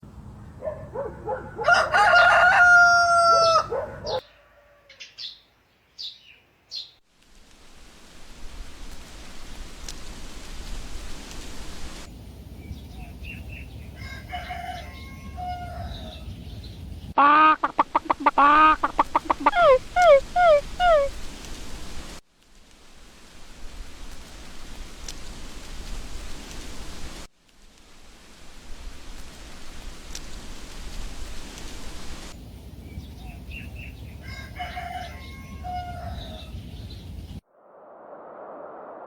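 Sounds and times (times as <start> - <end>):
rooster crowing: 1.0 - 5.0, 13.9 - 16.3, 17.8 - 21.1, 34.1 - 36.6
rapid repeated chicken calls: 1.0 - 5.3, 13.9 - 16.3, 17.2 - 21.4, 33.8 - 36.9
rural ambience hiss: 6.1 - 37.4
chickens clucking: 17.2 - 21.2.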